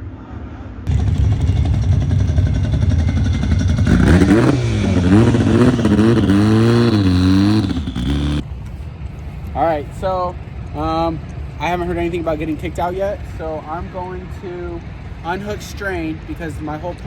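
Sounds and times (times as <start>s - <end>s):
car engine revving: 0.9s - 8.4s.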